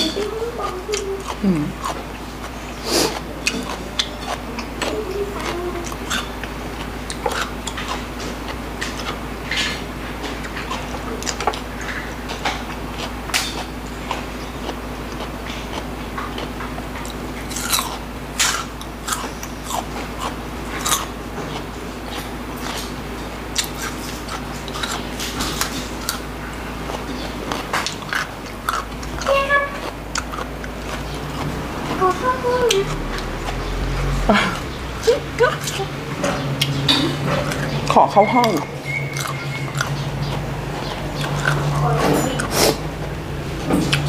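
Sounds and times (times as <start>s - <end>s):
wet chewing: 0.0s - 44.0s
crisp vegetable crunches: 13.0s - 31.6s.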